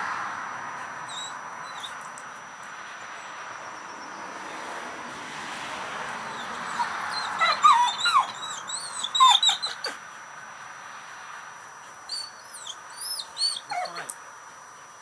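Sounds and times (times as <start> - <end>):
dog whimpering: 6.4 - 10.0, 12.1 - 14.2.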